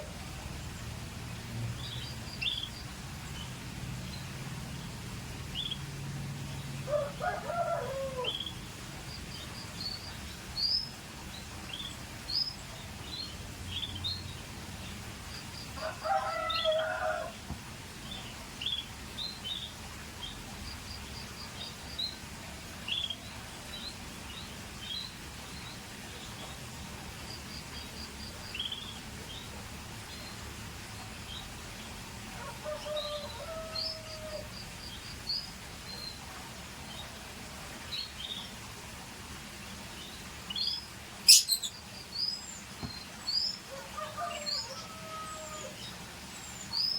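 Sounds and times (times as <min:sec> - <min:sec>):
canaries chirping and trilling: 0:40.5 - 0:41.7.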